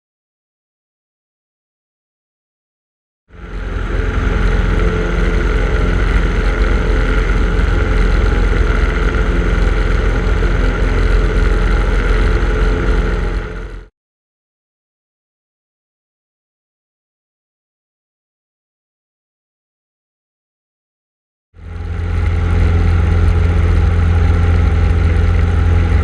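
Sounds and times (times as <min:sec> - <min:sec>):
light aircraft engine and propeller droning: 0:03.3 - 0:13.9, 0:21.6 - 0:26.0.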